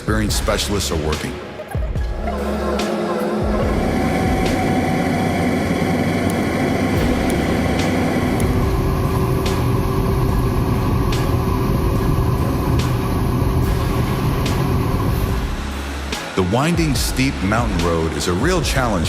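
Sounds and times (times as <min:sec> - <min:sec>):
heavy truck engine running: 0:02.3 - 0:16.2.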